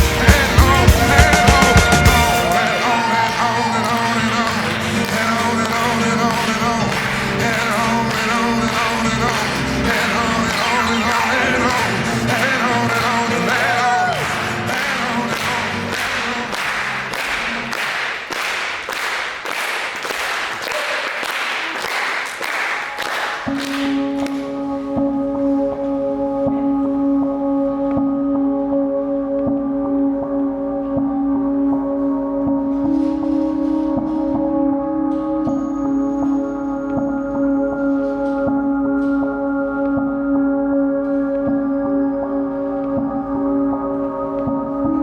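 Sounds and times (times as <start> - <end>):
dance music with singing: 0.0 - 18.4.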